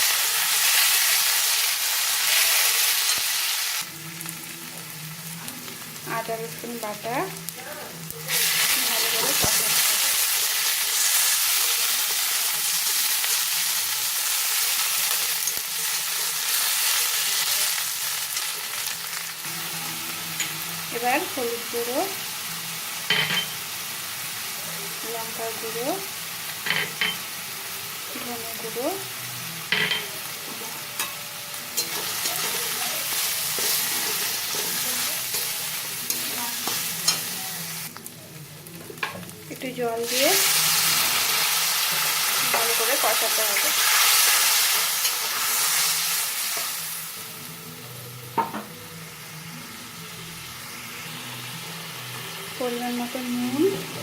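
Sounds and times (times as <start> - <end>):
food sizzling in hot oil: 0.0 - 54.0.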